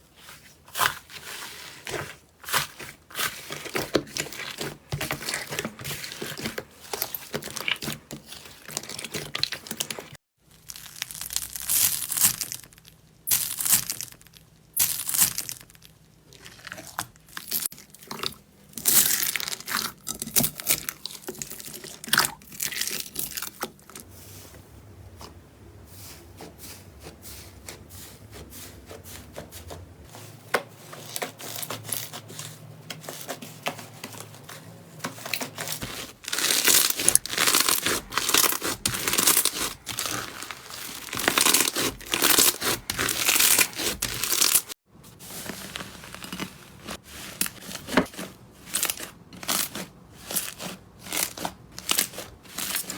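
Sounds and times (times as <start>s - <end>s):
slime crackling and tearing: 5.2s - 24.0s, 35.4s - 44.8s.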